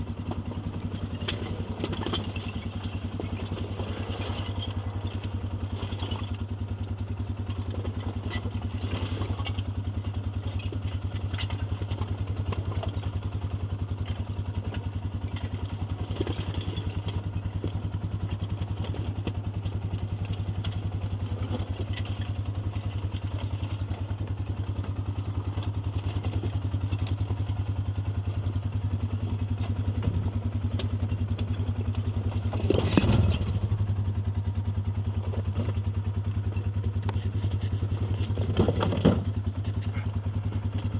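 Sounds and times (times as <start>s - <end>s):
atv engine running at low revs: 0.0s - 40.9s
chassis clatter and knocks: 32.5s - 33.6s, 38.2s - 39.4s.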